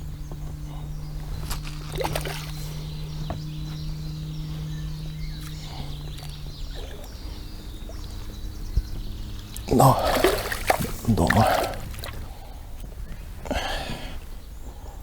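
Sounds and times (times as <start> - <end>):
steady low hum: 0.0 - 15.0
fish thrashing water splashing: 1.6 - 2.8, 9.5 - 12.5.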